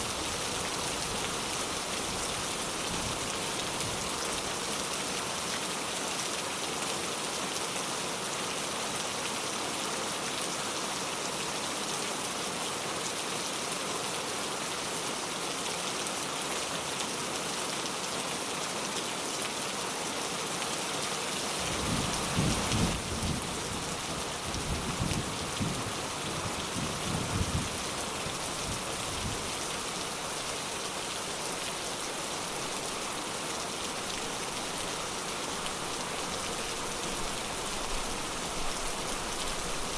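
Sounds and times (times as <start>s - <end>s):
steady rain hiss: 0.0s - 39.9s
low rumble of thunder: 21.8s - 23.8s, 24.5s - 27.9s.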